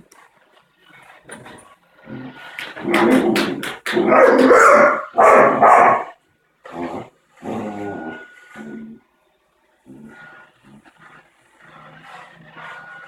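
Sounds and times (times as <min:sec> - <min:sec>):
dog barking and growling: 0:02.1 - 0:09.0.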